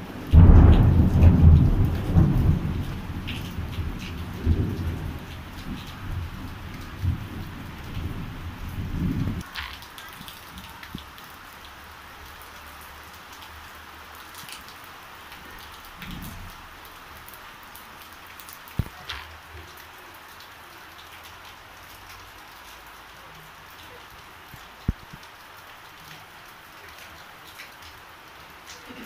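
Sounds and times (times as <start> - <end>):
rain pattering on foliage: 0.0 - 29.0.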